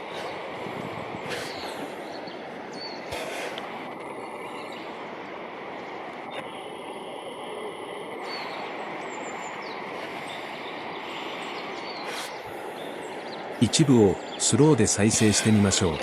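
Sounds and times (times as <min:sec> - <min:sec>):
outdoor background rumble: 0:00.0 - 0:16.0
faint high bird calls: 0:01.2 - 0:03.4, 0:07.3 - 0:16.0.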